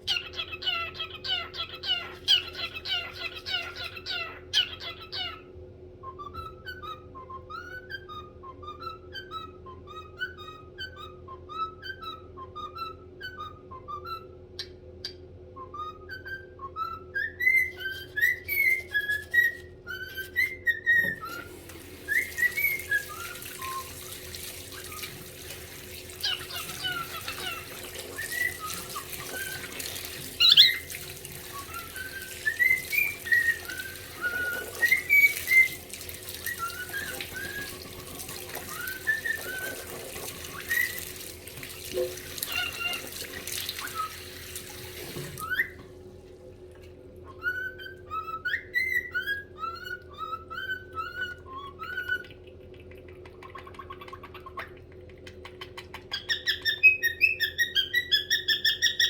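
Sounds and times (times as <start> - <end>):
cockatiel whistling: 6.0 - 25.3, 26.2 - 41.2, 42.4 - 46.0, 47.2 - 52.4, 55.8 - 59.0
running water: 21.0 - 46.8.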